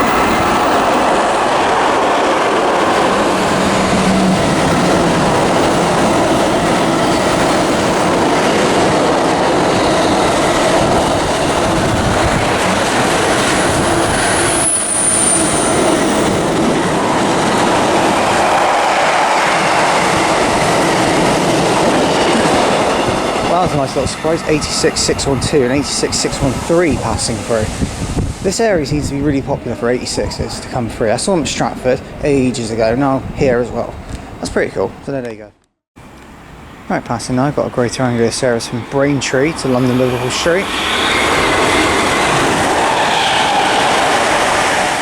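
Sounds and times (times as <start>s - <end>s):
train rumble and wheel clatter: 0.0s - 35.0s, 36.0s - 45.0s
high-pitched wheel squeal: 13.5s - 16.5s, 39.9s - 44.4s.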